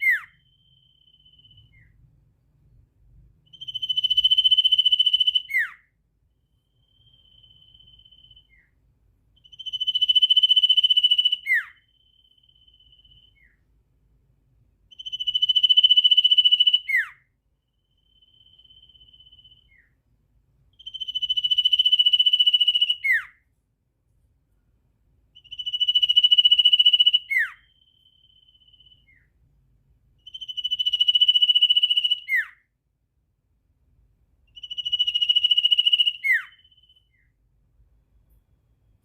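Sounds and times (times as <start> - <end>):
songbird buzzy trills: 0.0 - 2.1, 3.5 - 8.8, 14.9 - 20.0, 25.4 - 29.4, 30.2 - 32.6, 34.5 - 37.4
faint steady whistle: 0.0 - 13.8, 14.8 - 23.5, 24.5 - 32.8, 34.4 - 37.6.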